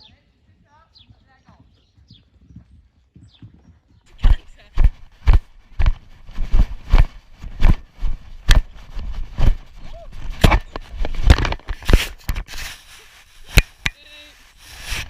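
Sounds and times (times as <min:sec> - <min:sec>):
horse hooves cantering: 0:00.0 - 0:12.1
rustling scuffle: 0:04.1 - 0:15.0.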